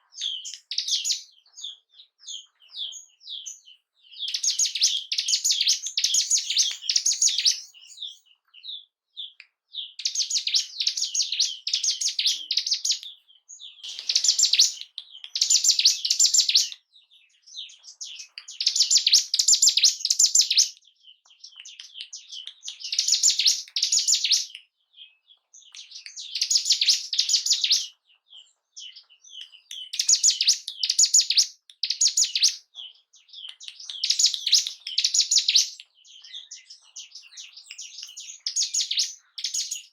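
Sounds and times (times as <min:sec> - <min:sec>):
bird singing rapid high notes: 0:02.3 - 0:08.2, 0:13.7 - 0:16.8.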